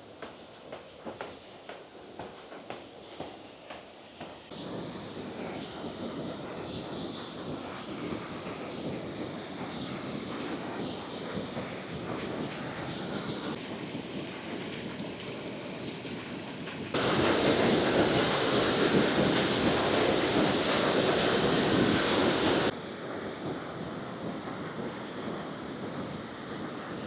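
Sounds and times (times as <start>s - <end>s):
waterfall rushing: 17.0s - 22.7s.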